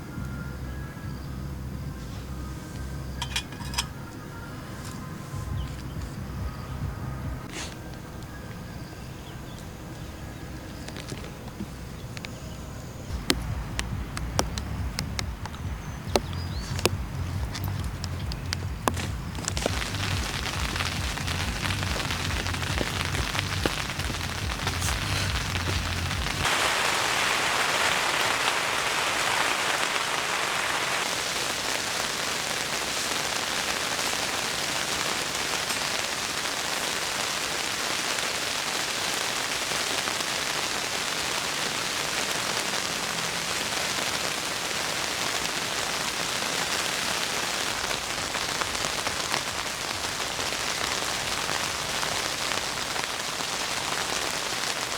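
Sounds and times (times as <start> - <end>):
low hum: 0.2 - 26.5
heavy rain falling: 1.4 - 54.9.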